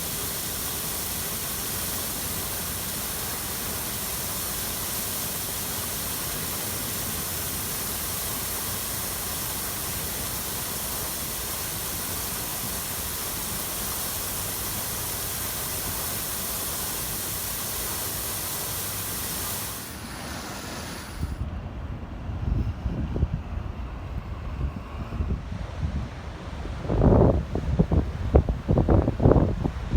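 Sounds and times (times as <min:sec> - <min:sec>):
flowing water rushing: 0:00.0 - 0:21.3
wind rumble on microphone: 0:21.2 - 0:29.9.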